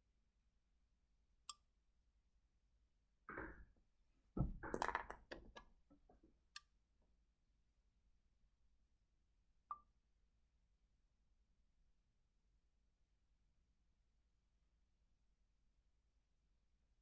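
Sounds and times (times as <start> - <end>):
stones clicking and knocking: 4.4 - 6.2.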